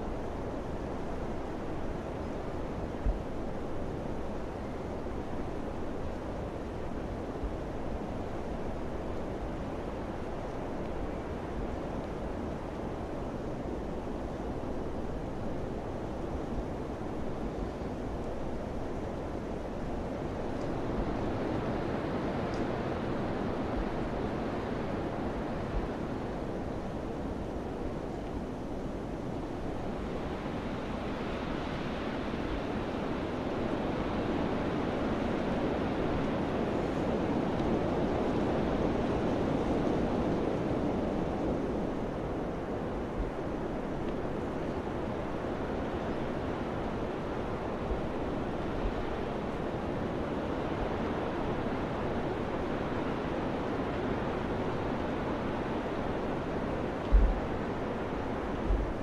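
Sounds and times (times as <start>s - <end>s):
wind blowing: 54.0s - 59.0s.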